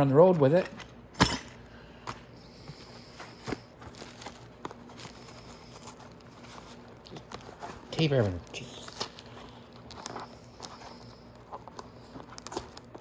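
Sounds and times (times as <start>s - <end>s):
packaging rustling: 2.9s - 13.0s.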